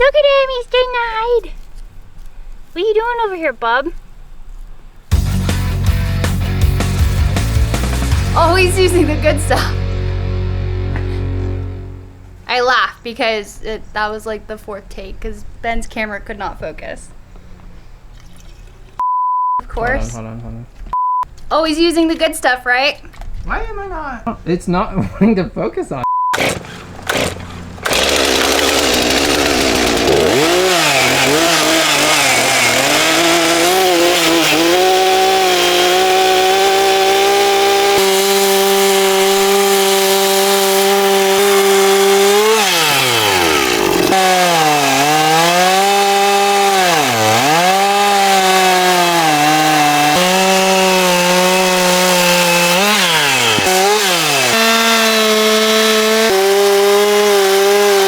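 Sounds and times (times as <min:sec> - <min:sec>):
chainsaw cutting wood: 0:26.3 - 0:58.0.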